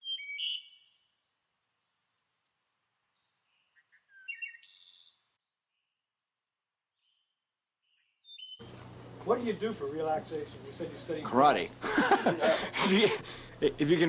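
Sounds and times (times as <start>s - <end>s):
birds chirping with high trills: 0.0s - 6.0s, 7.0s - 11.5s.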